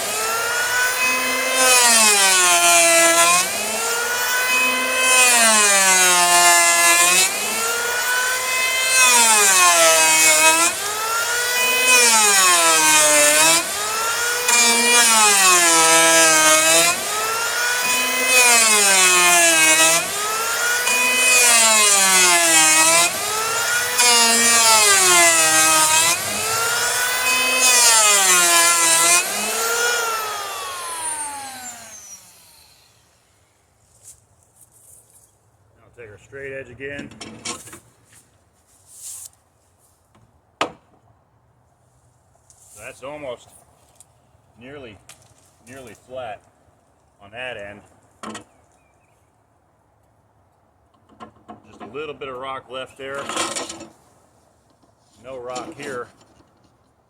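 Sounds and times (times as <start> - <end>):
electric hand planer cutting wood: 0.0 - 33.2.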